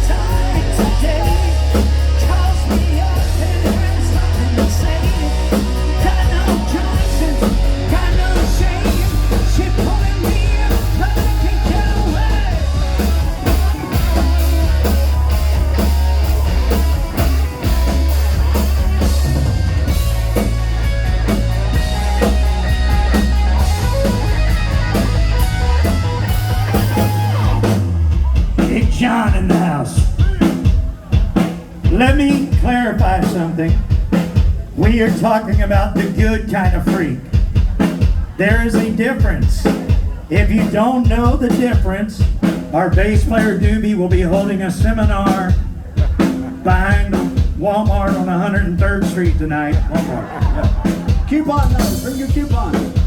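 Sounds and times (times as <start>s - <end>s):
person singing: 0.0s - 18.6s
drum kit: 0.0s - 53.0s
guitars: 0.0s - 53.0s
heavy bass line: 0.0s - 53.0s.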